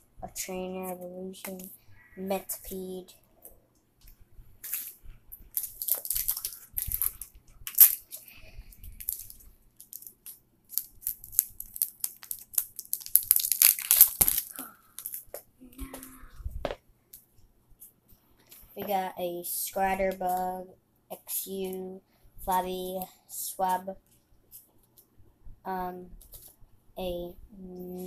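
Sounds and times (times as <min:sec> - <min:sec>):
foil wrapper tearing: 0:04.6 - 0:08.2, 0:09.0 - 0:15.3
foil wrapper crinkling: 0:04.6 - 0:15.4.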